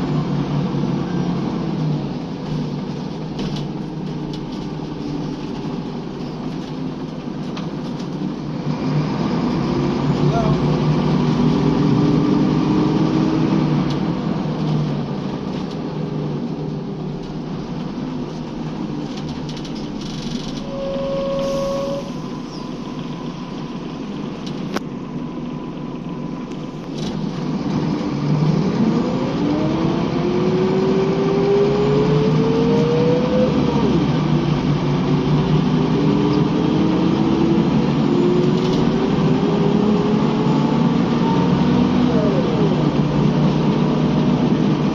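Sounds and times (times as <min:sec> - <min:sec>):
bus engine accelerating: 0:00.0 - 0:44.9
brief high tone: 0:20.7 - 0:23.0.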